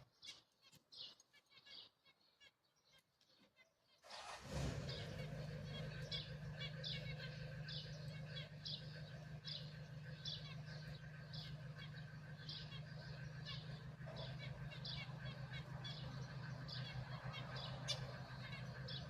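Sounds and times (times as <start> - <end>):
bird chirping: 0.0 - 19.0
steady low hum: 5.1 - 19.0.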